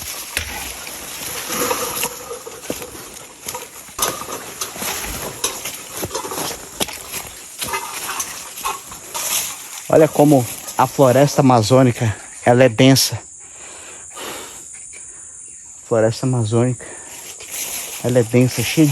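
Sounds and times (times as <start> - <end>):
footsteps crunching through dry leaves: 0.0 - 11.4, 17.2 - 18.9
high insect drone: 0.0 - 18.9.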